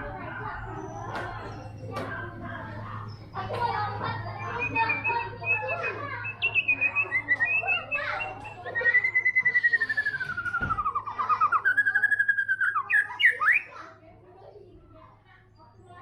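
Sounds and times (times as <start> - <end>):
bird singing whistled phrases: 4.4 - 13.7.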